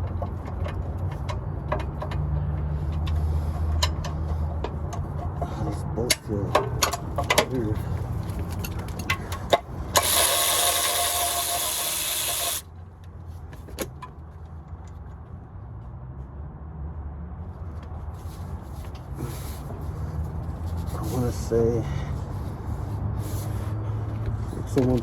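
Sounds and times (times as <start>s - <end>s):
impact wrench hammering: 10.0s - 12.6s.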